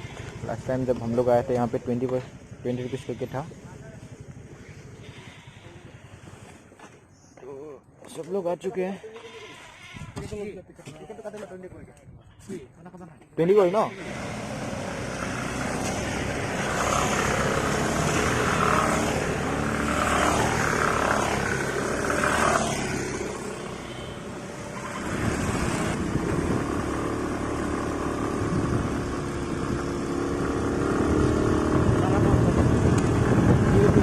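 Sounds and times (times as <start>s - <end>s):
scooter engine running: 13.9s - 34.0s.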